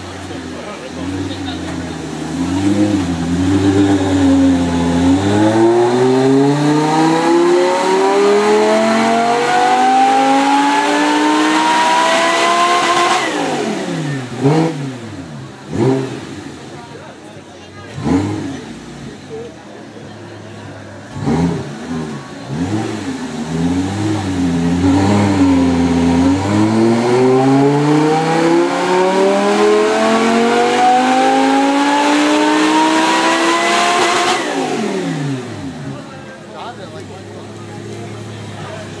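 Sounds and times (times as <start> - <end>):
car engine revving on dyno: 0.0 - 17.2, 17.8 - 19.5, 20.5 - 39.0.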